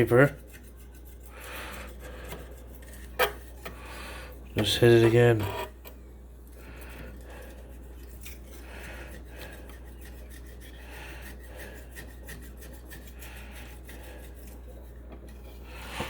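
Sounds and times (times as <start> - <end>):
razor scraper scraping glass: 0.0 - 3.8, 7.5 - 16.0.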